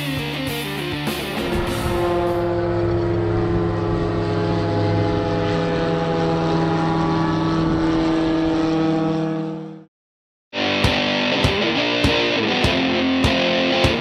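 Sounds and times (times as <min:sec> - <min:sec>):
aircraft engine and propeller drone: 0:00.0 - 0:09.9.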